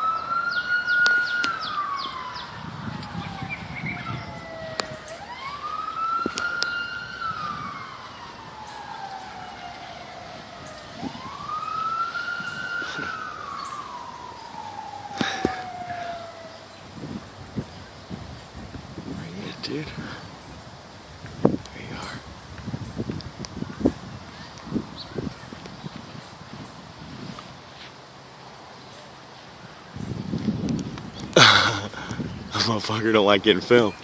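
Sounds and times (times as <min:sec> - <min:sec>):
emergency vehicle siren wailing: 0:00.0 - 0:21.1.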